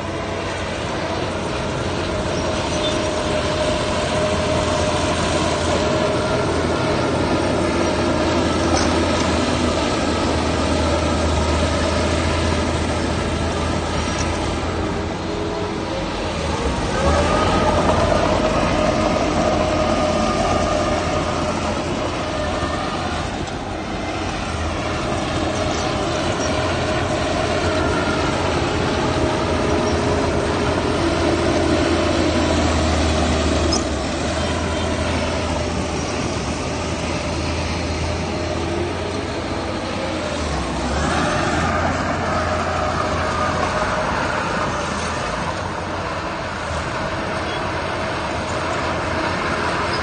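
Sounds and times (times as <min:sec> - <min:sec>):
diesel engine hum: 0:00.0 - 0:50.0.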